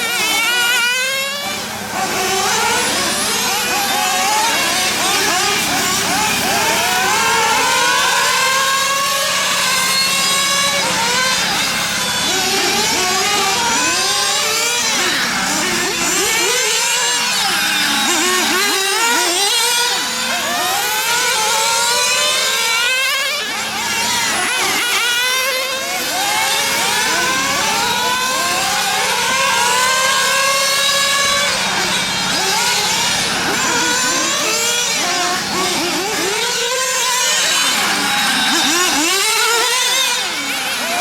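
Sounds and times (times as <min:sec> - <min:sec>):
model car engines whining: 0:00.0 - 0:41.0.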